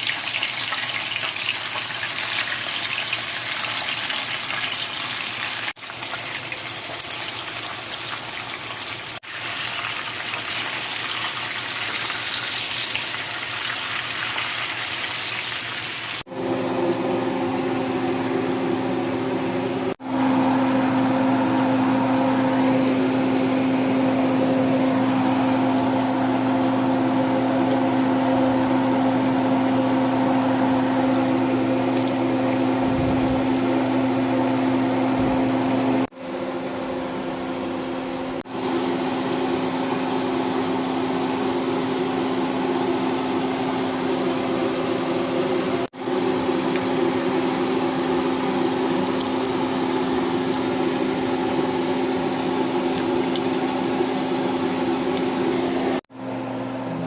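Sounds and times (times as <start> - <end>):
appliance motor humming: 16.2 - 57.0.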